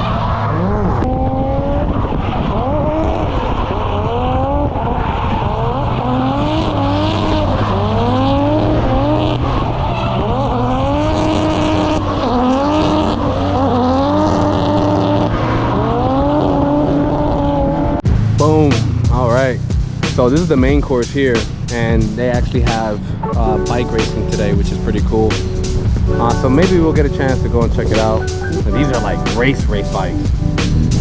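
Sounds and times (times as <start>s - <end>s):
car engine revving: 0.0s - 31.0s
road and wind drone: 0.0s - 31.0s.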